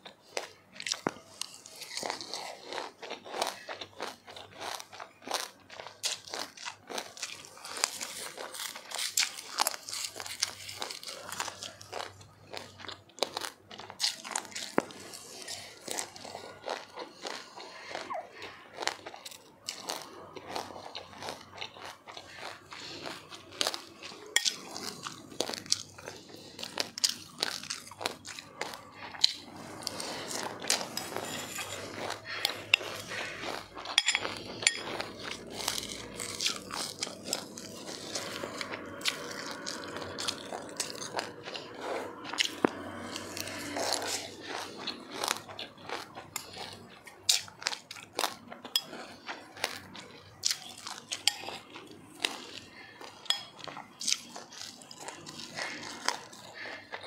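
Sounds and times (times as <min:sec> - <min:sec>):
crunching and chewing ice: 0:00.0 - 0:57.0.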